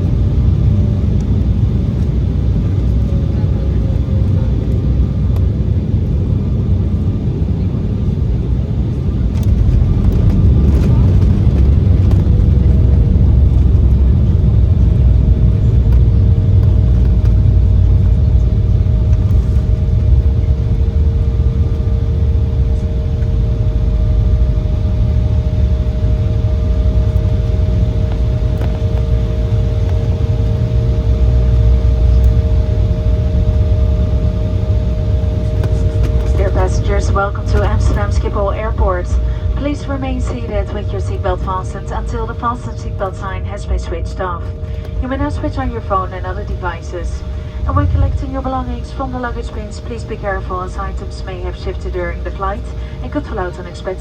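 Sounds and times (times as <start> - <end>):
jet engine whine: 0.0 - 54.0
low rumble of rolling aircraft: 0.0 - 54.0
higher whine: 8.5 - 54.0.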